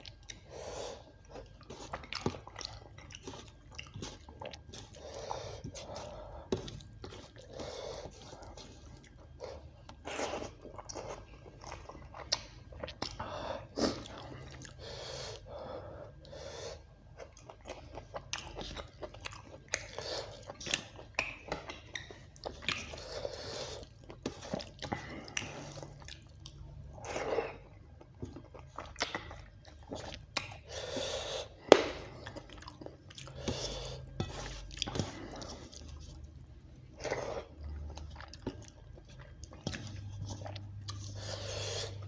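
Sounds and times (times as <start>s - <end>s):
person chewing food: 0.0s - 42.0s.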